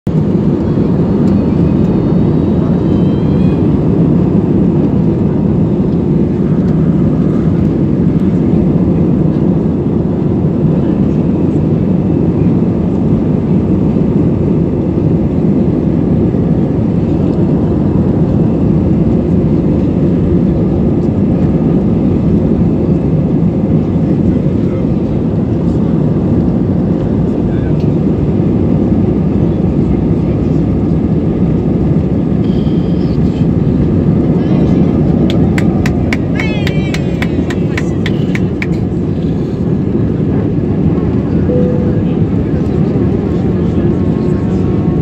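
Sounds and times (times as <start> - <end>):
jet engines rumbling in cabin: 0.1 - 45.0
faint high whine: 41.4 - 42.8.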